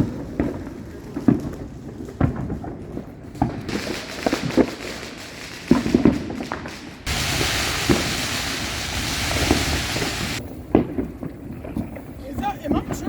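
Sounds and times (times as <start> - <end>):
firecrackers banging: 0.0 - 13.0
steady rushing noise: 7.1 - 10.4.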